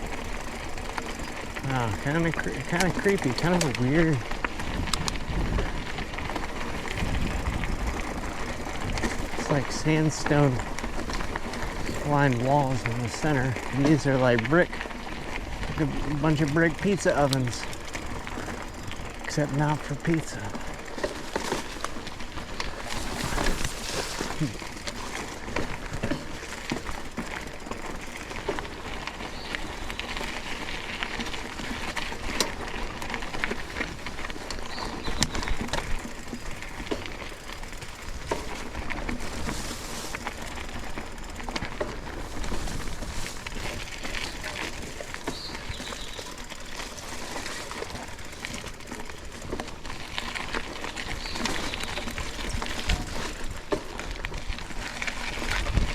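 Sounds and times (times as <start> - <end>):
rustling crunching noise: 0.0 - 55.9
small clicks: 0.4 - 5.2.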